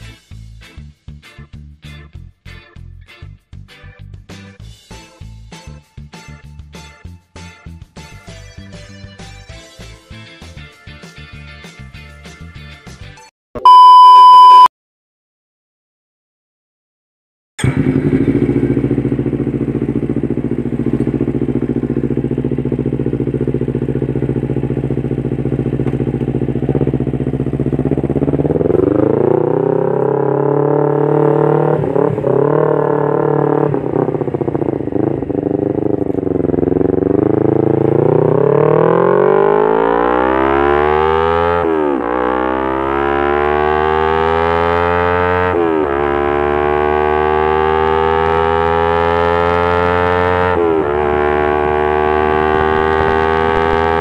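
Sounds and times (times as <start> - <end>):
motorcycle engine revving: 17.6 - 54.0.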